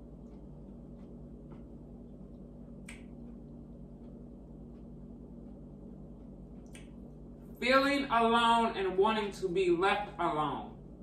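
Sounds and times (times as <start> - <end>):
low electrical hum: 0.0 - 11.0
mouth clicks of chewing: 2.8 - 3.4, 6.2 - 6.9.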